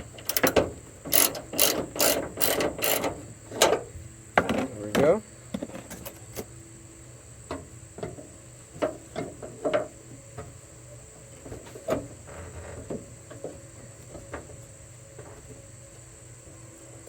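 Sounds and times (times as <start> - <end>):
ratchet metal clicks and knocks: 0.0 - 3.8.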